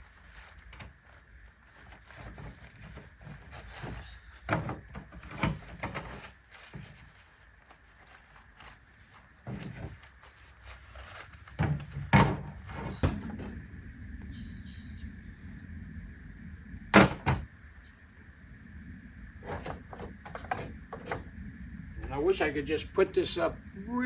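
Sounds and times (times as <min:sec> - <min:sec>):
knocks and clunks of gear: 0:01.8 - 0:13.8, 0:17.0 - 0:17.5, 0:19.4 - 0:21.3.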